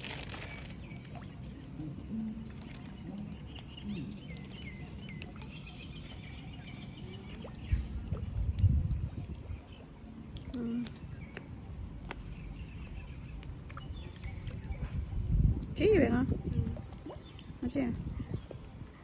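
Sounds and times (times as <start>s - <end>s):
small birds chirping: 0.0s - 8.2s, 9.1s - 19.0s
steady low rumble: 6.9s - 10.5s.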